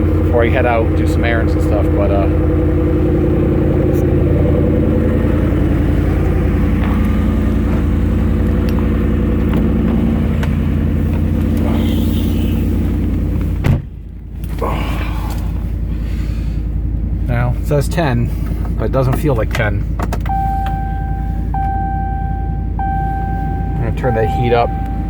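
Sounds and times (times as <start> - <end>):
truck engine idling: 0.0 - 25.0
thump: 13.6 - 14.0.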